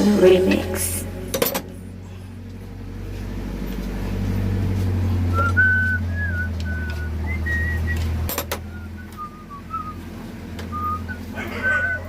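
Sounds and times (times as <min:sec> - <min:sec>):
low motor hum: 0:00.0 - 0:12.0
person whistling: 0:05.3 - 0:08.0, 0:08.7 - 0:10.0, 0:10.7 - 0:12.0.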